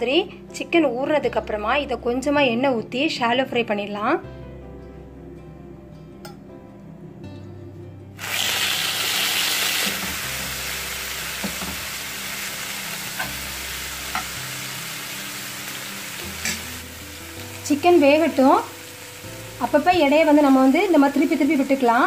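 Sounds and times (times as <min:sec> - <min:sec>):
chicken sizzling in hot oil: 0:08.2 - 0:22.0.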